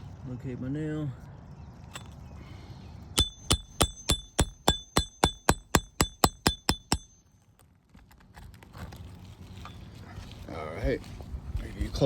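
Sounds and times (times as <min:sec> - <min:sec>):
hammer tapping metal nail puller: 0:03.2 - 0:07.2.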